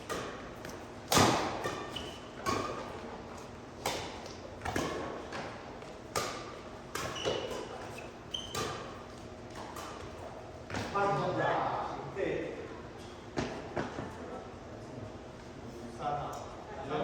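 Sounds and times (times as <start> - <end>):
rackets hitting shuttlecock: 0.0 - 10.2
shoe squeaks: 1.7 - 2.9, 7.0 - 9.1.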